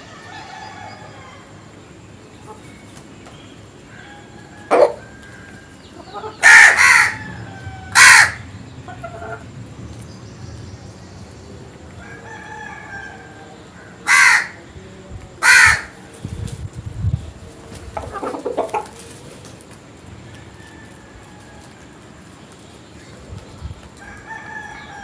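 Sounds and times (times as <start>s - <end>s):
crows cawing: 4.2s - 9.4s, 12.1s - 14.6s, 15.4s - 16.0s.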